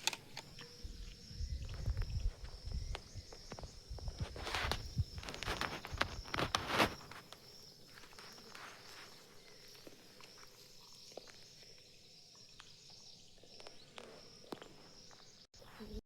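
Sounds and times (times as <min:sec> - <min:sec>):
small clicks: 0:00.0 - 0:07.5
high-pitched insect-like hum: 0:00.0 - 0:16.0.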